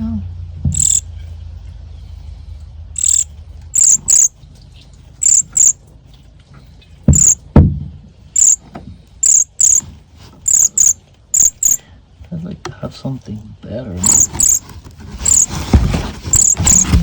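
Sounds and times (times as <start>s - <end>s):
baby birds chirping: 0.7s - 1.0s, 3.0s - 4.3s, 5.2s - 5.8s, 7.1s - 7.4s, 8.4s - 8.6s, 9.2s - 11.8s, 14.0s - 17.0s.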